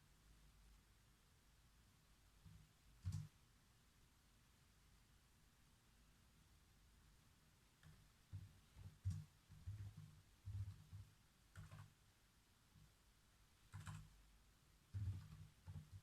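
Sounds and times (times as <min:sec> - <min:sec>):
typing on computer keyboard: 0:02.5 - 0:03.4, 0:07.8 - 0:12.0, 0:13.6 - 0:14.2, 0:14.9 - 0:16.0.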